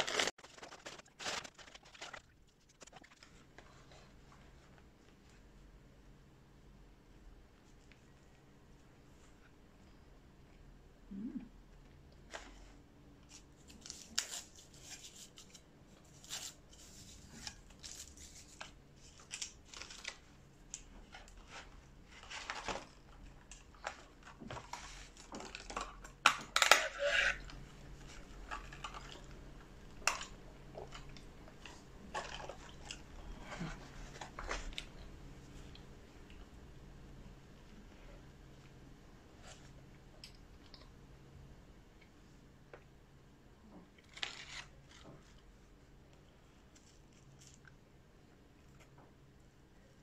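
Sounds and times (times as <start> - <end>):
chewing and crunching food: 27.4 - 36.5.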